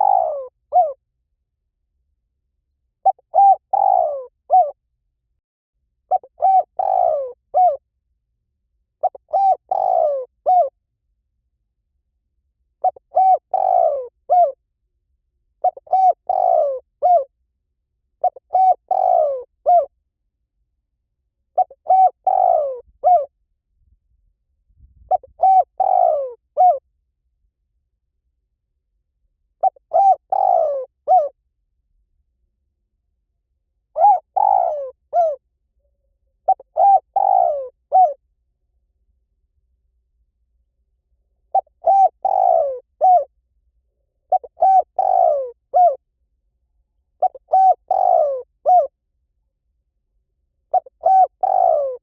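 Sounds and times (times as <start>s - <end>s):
dove cooing: 0.0s - 1.0s, 3.0s - 4.8s, 6.1s - 7.8s, 9.0s - 10.7s, 12.8s - 14.6s, 15.6s - 17.3s, 18.2s - 19.9s, 21.6s - 23.3s, 25.1s - 26.8s, 29.6s - 31.3s, 34.0s - 35.4s, 36.4s - 38.2s, 41.5s - 43.3s, 44.3s - 46.0s, 47.2s - 48.9s, 50.7s - 52.0s.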